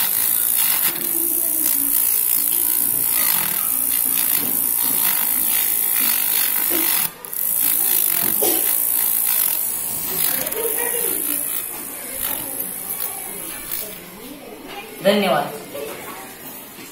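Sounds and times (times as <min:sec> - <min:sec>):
small drill grinding into wood: 0:00.0 - 0:14.0.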